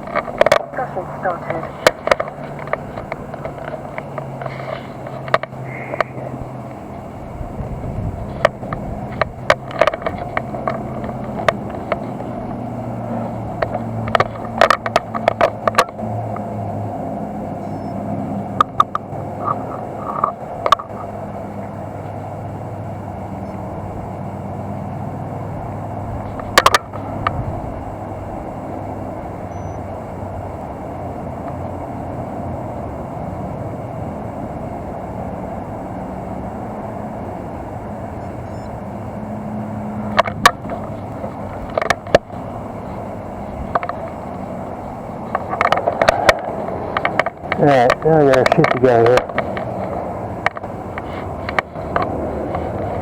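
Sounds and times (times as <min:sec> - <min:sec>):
sharp clicks and knocks: 0:00.0 - 0:16.6, 0:18.4 - 0:21.2, 0:26.2 - 0:27.5, 0:40.0 - 0:53.0.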